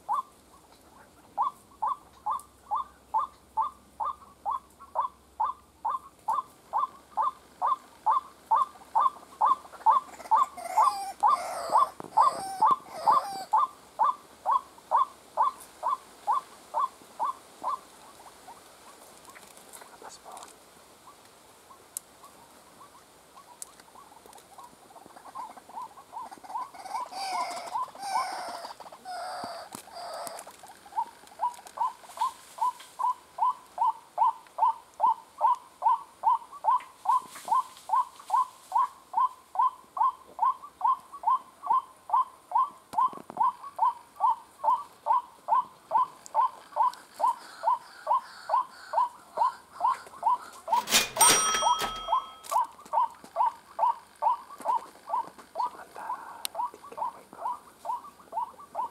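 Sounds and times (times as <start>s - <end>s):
harsh bird squawking: 1.4s - 17.8s.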